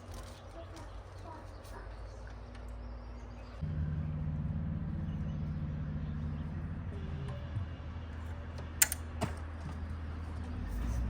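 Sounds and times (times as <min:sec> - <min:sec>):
engine idling: 0:02.1 - 0:11.0
sharp clicks: 0:08.8 - 0:09.0.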